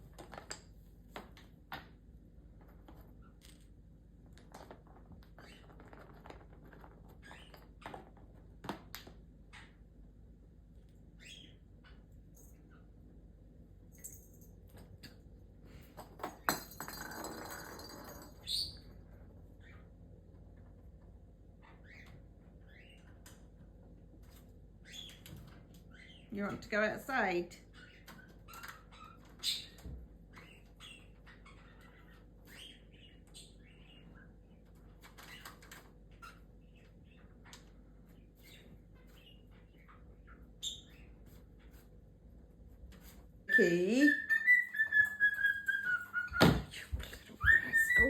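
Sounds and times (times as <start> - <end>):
cockatoos chirping: 43.5 - 48.0.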